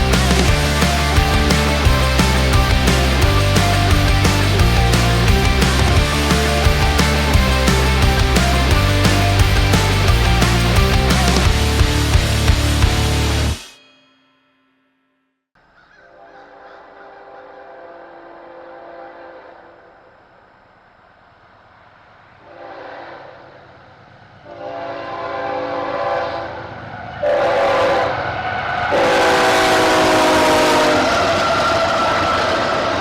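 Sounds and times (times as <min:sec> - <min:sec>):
train rumble: 0:00.0 - 0:13.6, 0:19.5 - 0:33.0
locomotive air horn blasts: 0:22.5 - 0:23.4, 0:24.5 - 0:26.6, 0:27.2 - 0:28.2, 0:28.9 - 0:32.6.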